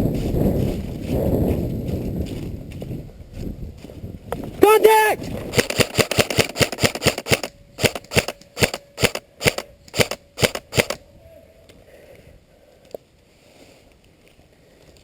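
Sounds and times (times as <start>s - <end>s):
airsoft gun shots: 5.5s - 11.0s.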